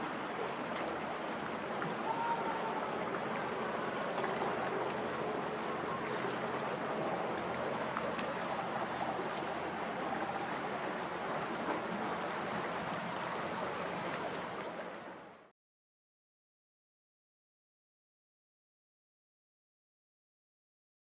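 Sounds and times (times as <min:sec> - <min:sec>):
harbour water rushing: 0:00.0 - 0:15.5
faint clicks: 0:13.2 - 0:14.8.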